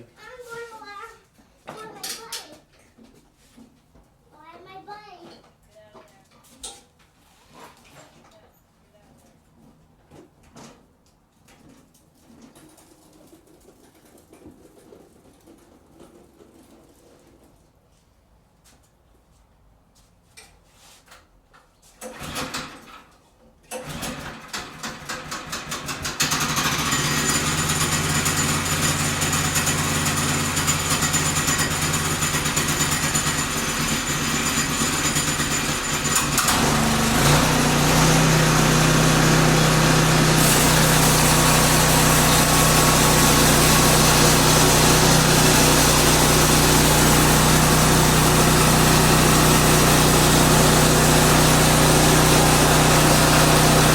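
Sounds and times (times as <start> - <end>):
gas engine cranking and running: 23.7 - 53.9.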